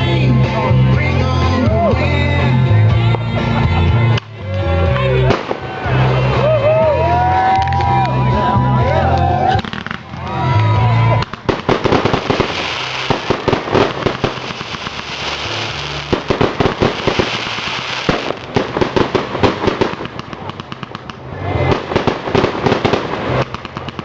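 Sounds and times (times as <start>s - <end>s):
fireworks crackling pops: 4.1s - 6.0s, 9.2s - 24.0s.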